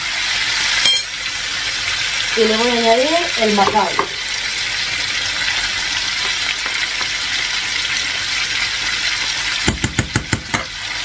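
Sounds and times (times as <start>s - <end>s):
chicken frying in oil: 0.0s - 11.0s.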